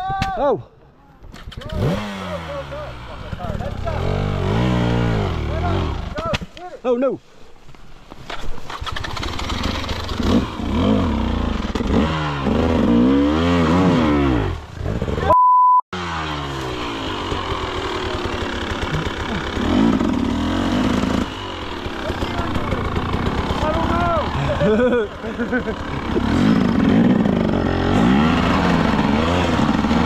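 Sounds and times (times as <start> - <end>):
dirt bike engine revving: 1.6 - 6.3, 8.7 - 15.3, 16.0 - 30.0
censor bleep: 15.3 - 15.8.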